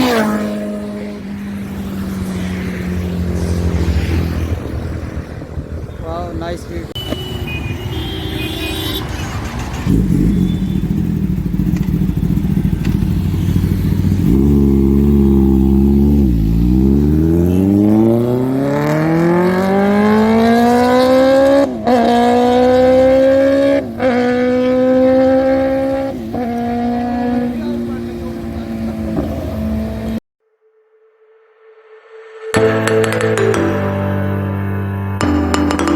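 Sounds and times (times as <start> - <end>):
motorcycle engine accelerating: 0.0 - 6.2, 9.2 - 30.2.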